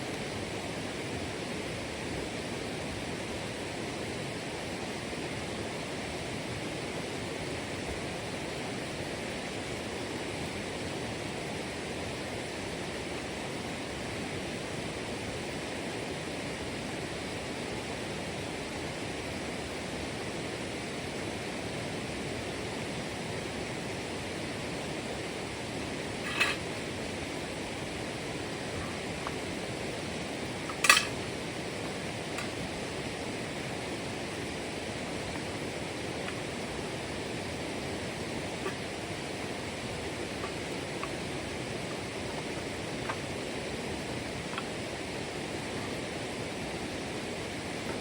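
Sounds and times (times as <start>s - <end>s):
flowing water rushing: 25.4s - 48.0s.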